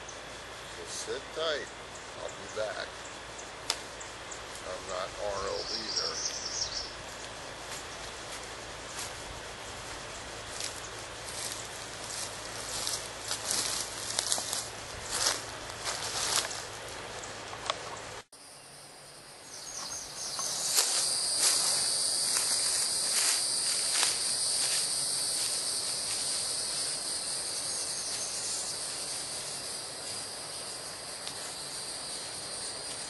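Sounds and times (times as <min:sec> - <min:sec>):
insects buzzing: 0:00.0 - 0:33.0.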